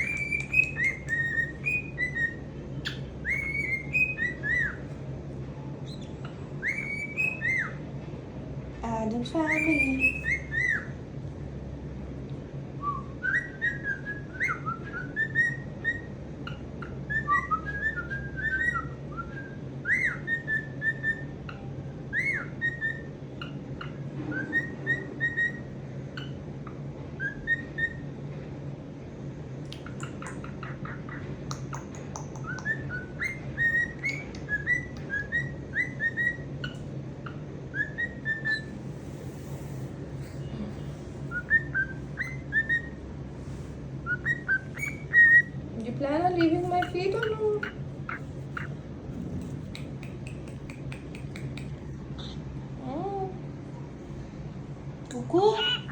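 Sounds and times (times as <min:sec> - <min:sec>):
cockatiel whistling: 0:00.0 - 0:04.9, 0:05.8 - 0:07.8, 0:09.5 - 0:11.0, 0:12.8 - 0:28.1, 0:29.7 - 0:39.7, 0:41.2 - 0:43.0, 0:44.0 - 0:45.6, 0:46.4 - 0:48.8, 0:55.6 - 0:55.9
steady low hum: 0:00.0 - 0:55.9.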